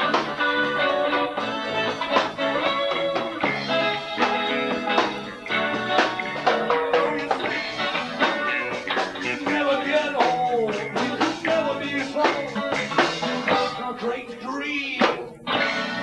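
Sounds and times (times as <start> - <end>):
bass guitar: 0.0 - 16.0
drum kit: 0.0 - 16.0
electric guitar: 0.0 - 16.0.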